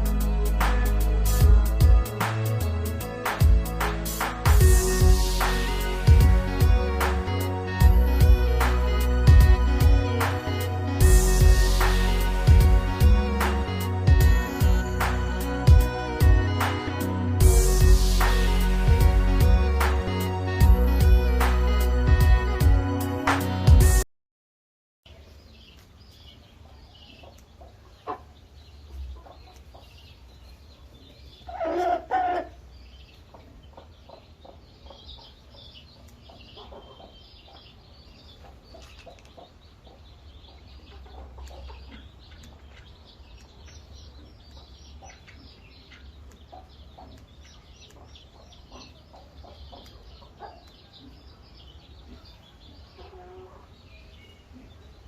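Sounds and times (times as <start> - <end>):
high chirps: 0.0 - 23.5
low rumble: 4.4 - 22.9
chickens clucking: 25.7 - 55.0
loud two-part chicken call: 31.5 - 32.6.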